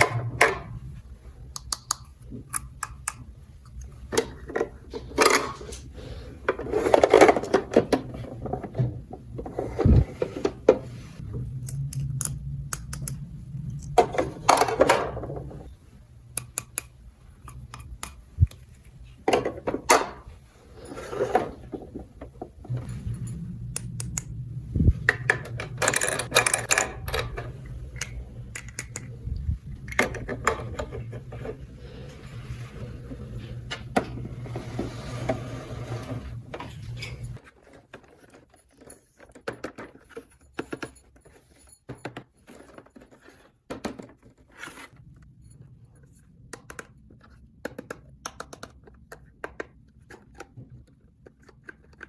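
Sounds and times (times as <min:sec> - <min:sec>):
low steady hum: 0:00.0 - 0:37.4.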